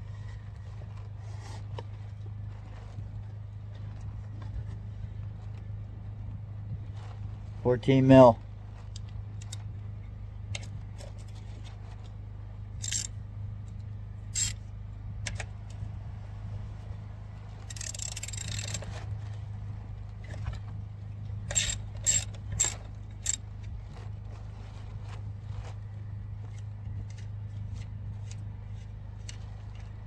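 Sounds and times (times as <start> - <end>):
metal tools clinking: 12.8 - 13.1, 14.4 - 14.6, 17.7 - 19.0, 21.5 - 23.4
ratchet clicking: 12.8 - 13.1, 14.4 - 14.6, 17.7 - 18.9, 21.5 - 23.4.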